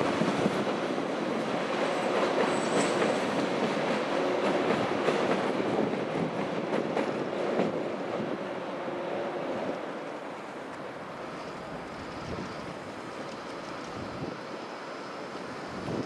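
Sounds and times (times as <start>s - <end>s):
train wheels clacking on rails: 0.0s - 8.5s
train rumble: 0.0s - 16.0s.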